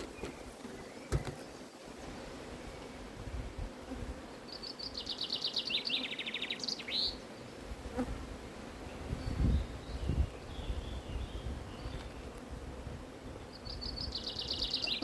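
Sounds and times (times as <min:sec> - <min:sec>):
honeybees humming: 0:00.0 - 0:15.0
bird trilling: 0:14.2 - 0:15.0.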